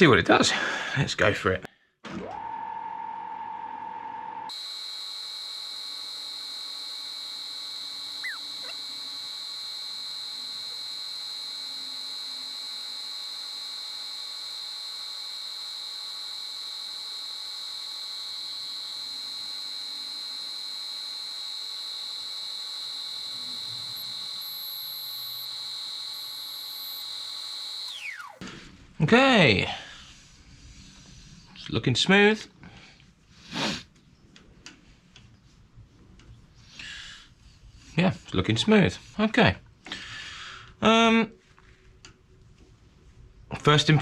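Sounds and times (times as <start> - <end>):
wood lathe motor whining: 2.1 - 28.7.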